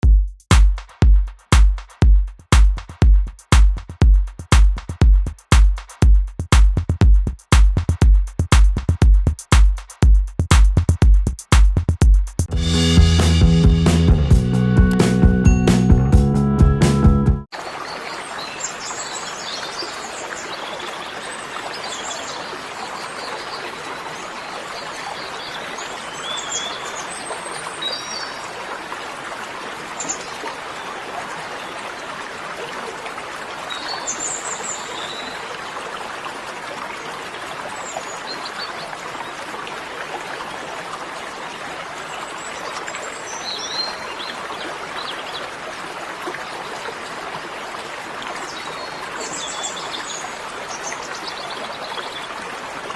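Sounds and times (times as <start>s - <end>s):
water rushing in a stream: 17.5s - 52.9s.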